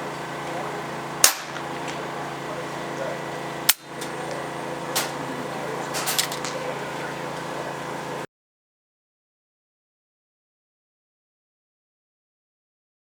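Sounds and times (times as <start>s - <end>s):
steady background hum: 0.0s - 8.3s
air rifle shot: 1.2s - 1.6s.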